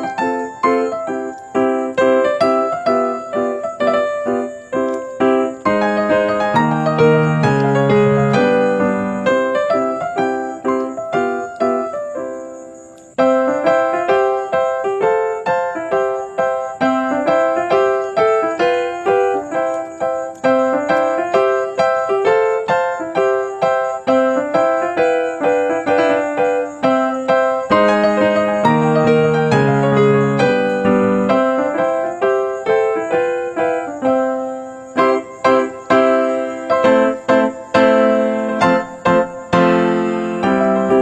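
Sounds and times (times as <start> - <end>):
bouncy piano music: 0.0 - 41.0.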